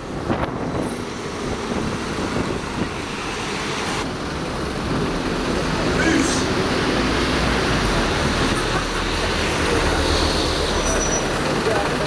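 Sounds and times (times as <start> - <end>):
wind rumbling on microphone: 0.0 - 5.7
traffic noise: 0.0 - 12.0
vehicle engine: 0.0 - 12.0.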